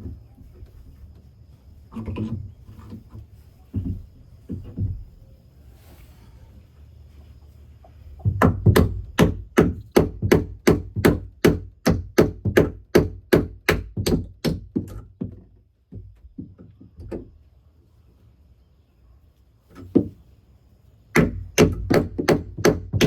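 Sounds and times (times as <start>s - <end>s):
hammer driving a nail into wood: 8.4s - 15.0s, 21.1s - 23.0s.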